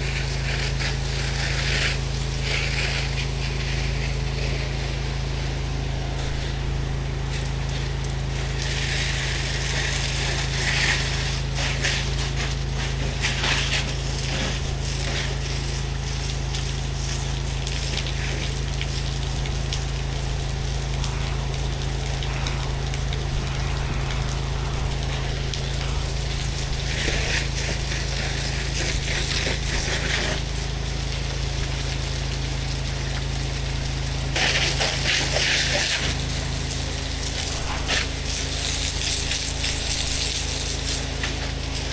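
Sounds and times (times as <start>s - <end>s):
high-pressure water spray hissing: 0.0s - 41.9s
pressure washer engine hum: 0.0s - 41.9s.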